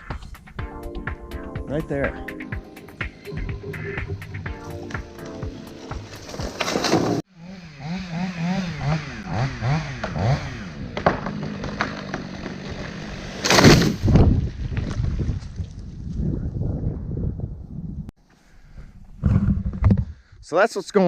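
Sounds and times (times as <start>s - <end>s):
engine revving: 6.9s - 14.0s.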